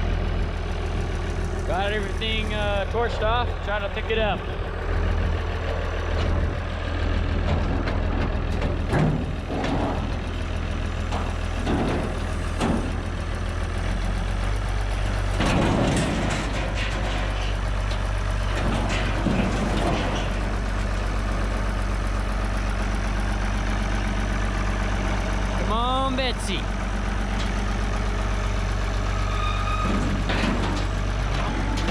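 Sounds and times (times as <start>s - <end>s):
tractor engine under load: 0.0s - 31.9s
metal clanks: 11.1s - 13.0s, 15.3s - 20.6s, 29.5s - 31.9s.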